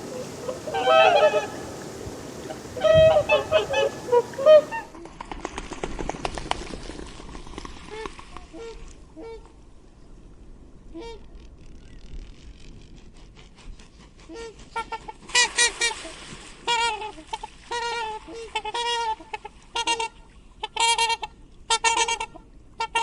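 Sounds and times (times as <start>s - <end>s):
swan calls: 0.0s - 5.0s, 7.9s - 9.5s, 14.3s - 23.0s.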